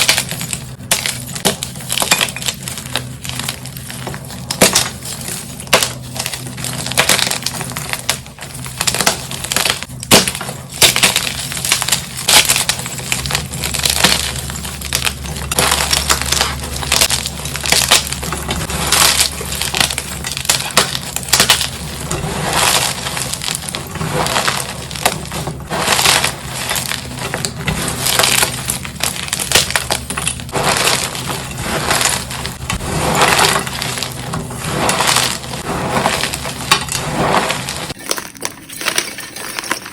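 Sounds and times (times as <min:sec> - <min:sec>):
chalk crunching: 0:11.2 - 0:38.0.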